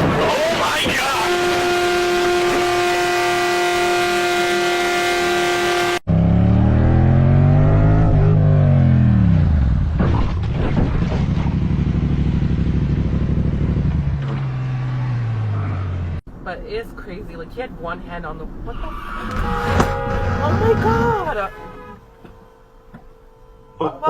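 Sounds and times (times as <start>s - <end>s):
car engine revving: 0.0s - 16.2s, 19.0s - 21.9s
car horn held: 1.1s - 6.0s, 18.7s - 24.0s.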